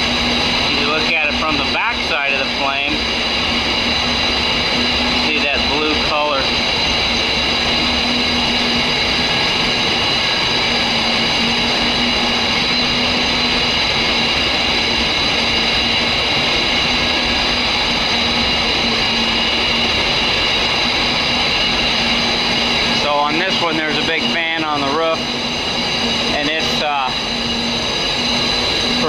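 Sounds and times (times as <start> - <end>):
boiler burner roaring: 0.0 - 29.0
constant low hum: 0.0 - 29.0
high-pitched whining tones: 0.0 - 29.0.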